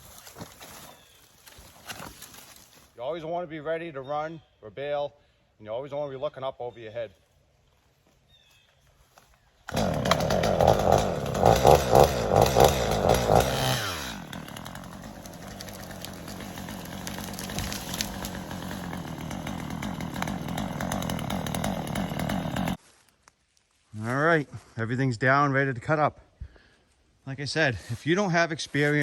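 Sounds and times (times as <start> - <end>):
chainsaw cutting: 9.7 - 22.8.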